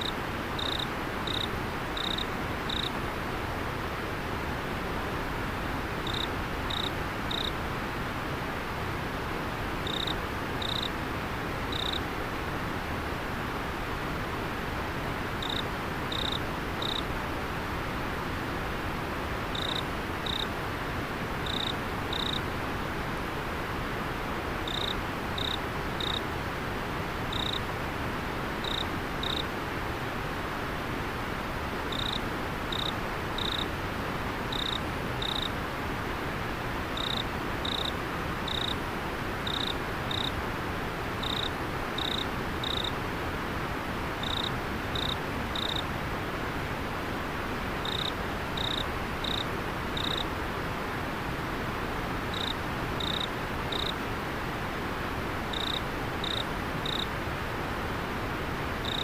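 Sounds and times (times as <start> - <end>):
cricket chirping: 0.0 - 2.9, 6.0 - 7.5, 9.8 - 10.9, 11.7 - 12.0, 15.4 - 17.1, 19.5 - 20.5, 21.4 - 22.4, 24.6 - 26.2, 27.3 - 27.6, 28.6 - 29.5, 31.9 - 33.7, 34.5 - 35.5, 37.0 - 37.9, 38.5 - 38.8, 39.4 - 40.3, 41.2 - 43.0, 44.2 - 45.8, 47.8 - 50.3, 52.3 - 54.0, 55.5 - 57.1.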